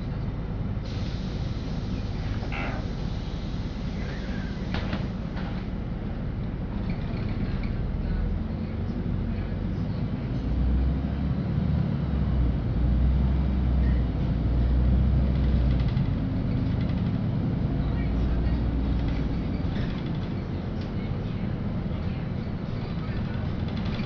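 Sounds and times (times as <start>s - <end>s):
bus engine and road rumble: 0.0s - 24.0s.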